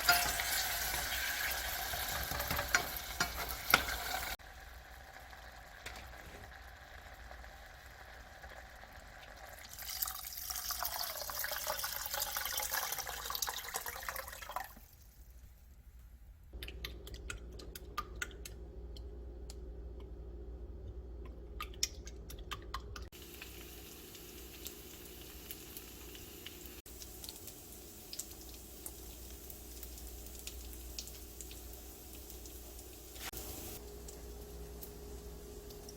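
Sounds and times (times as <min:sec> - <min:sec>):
steady low hum: 0:16.6 - 0:23.0.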